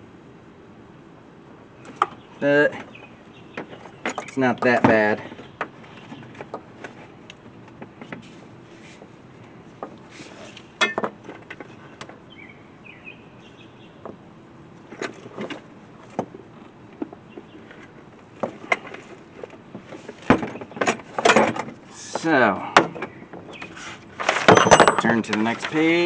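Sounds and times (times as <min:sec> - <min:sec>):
clicks and knocks of parts handled: 0:22.8 - 0:25.9
rattling clatter: 0:24.2 - 0:25.9.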